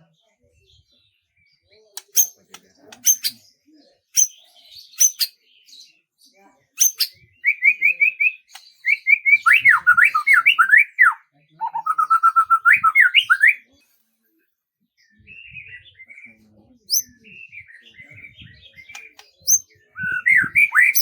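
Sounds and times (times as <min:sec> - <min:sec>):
soft bird chattering: 0:02.0 - 0:03.5, 0:04.2 - 0:05.4, 0:06.8 - 0:13.6, 0:16.3 - 0:21.0
songbird singing whistled notes: 0:02.0 - 0:03.5, 0:04.1 - 0:05.9, 0:06.8 - 0:13.7, 0:15.1 - 0:21.0.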